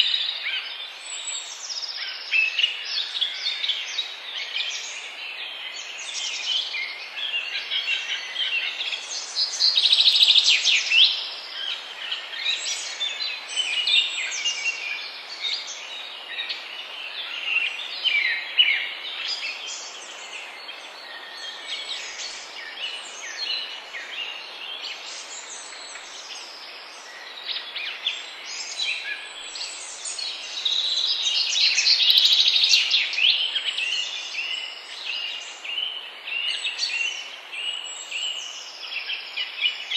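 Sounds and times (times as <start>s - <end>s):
faint steady hiss: 0.0s - 39.9s
songbirds chirping and trilling: 0.0s - 39.9s.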